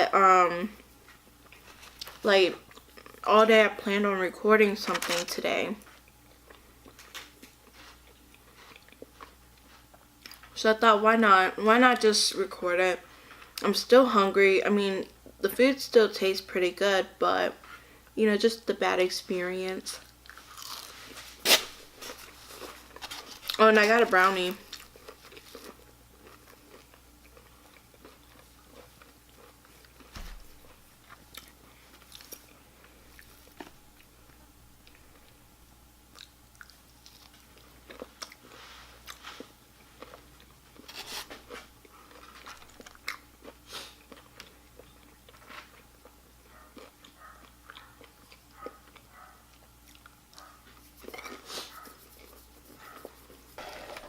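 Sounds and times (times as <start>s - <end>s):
chewing and crunching food: 0.7s - 3.3s, 4.8s - 10.6s, 19.9s - 35.4s, 36.1s - 54.0s.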